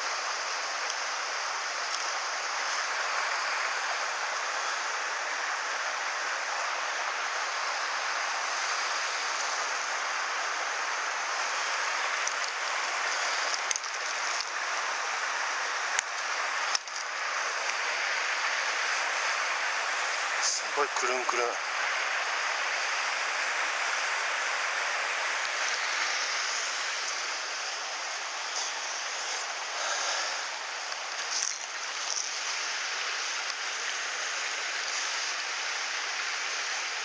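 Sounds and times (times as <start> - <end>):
stream water rushing: 0.0 - 37.0.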